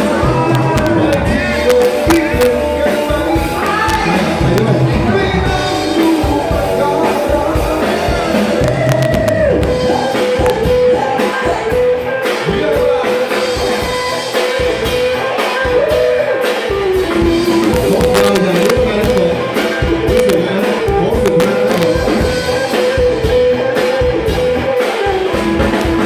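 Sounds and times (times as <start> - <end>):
drum kit: 0.0 - 26.0
electric guitar: 0.0 - 26.0
person singing: 0.0 - 26.0.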